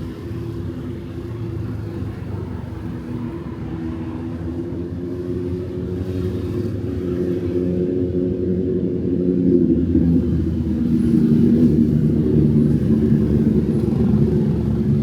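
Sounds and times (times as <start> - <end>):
engine humming nearby: 0.0 - 15.0
traffic wash: 0.0 - 15.0.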